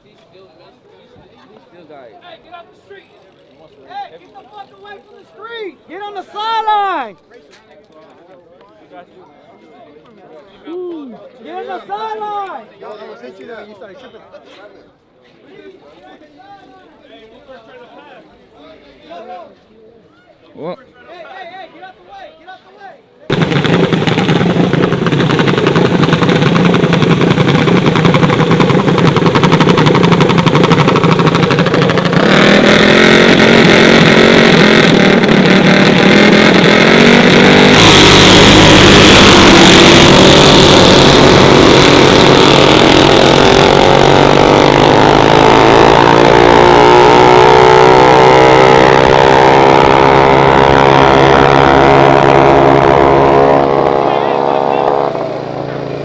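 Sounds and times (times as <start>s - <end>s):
mini bike engines racing: 23.3s - 56.0s.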